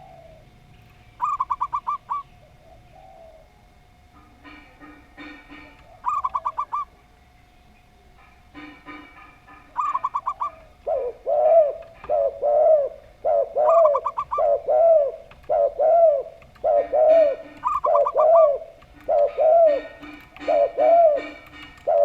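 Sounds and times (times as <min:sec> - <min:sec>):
doves cooing: 0:00.0 - 0:07.3, 0:08.3 - 0:22.0
rapid high bird notes: 0:08.5 - 0:22.0.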